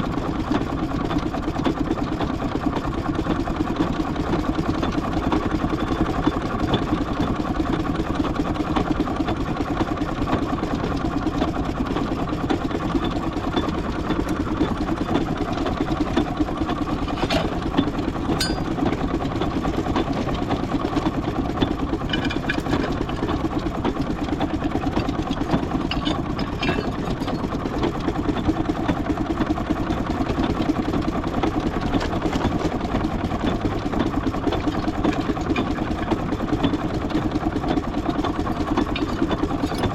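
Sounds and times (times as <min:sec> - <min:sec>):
metallic clanks: 0:18.3 - 0:19.0, 0:25.9 - 0:27.2.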